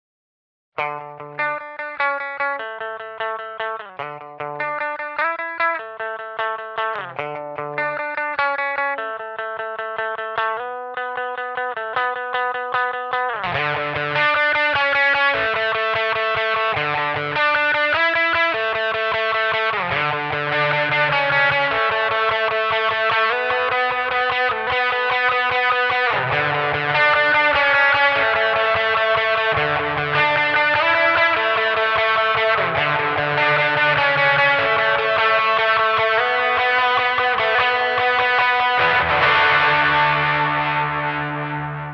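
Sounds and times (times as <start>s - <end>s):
distorted electric guitar melody: 0.8s - 41.9s.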